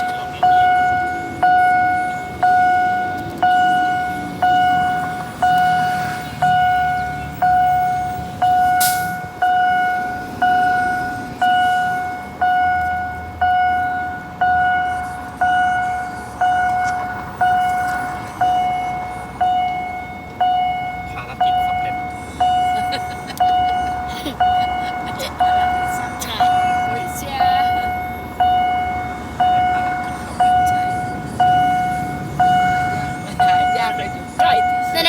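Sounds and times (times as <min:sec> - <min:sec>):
railroad crossing bell dinging: 0:00.0 - 0:35.0.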